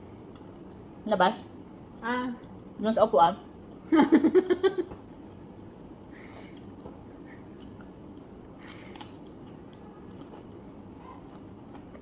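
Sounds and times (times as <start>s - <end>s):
person chewing crunchy food: 6.5s - 10.7s.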